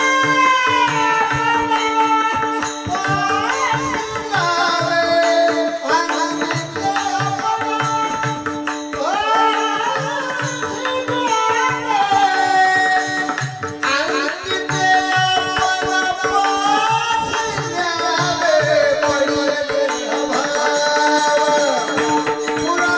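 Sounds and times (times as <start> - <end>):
hand drum beat: 0.0 - 22.9
jingling small percussion: 0.0 - 22.9
man singing ornamented high notes: 0.0 - 22.9.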